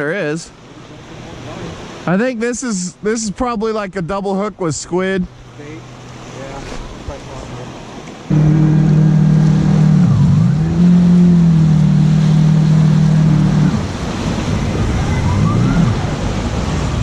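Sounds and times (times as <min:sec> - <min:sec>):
jet ski engine running: 0:05.2 - 0:17.0
engine with wavering pitch: 0:08.2 - 0:17.0.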